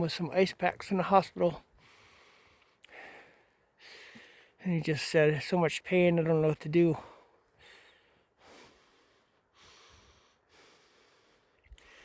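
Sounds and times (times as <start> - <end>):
man breathing faintly: 1.6 - 4.6, 7.0 - 12.0.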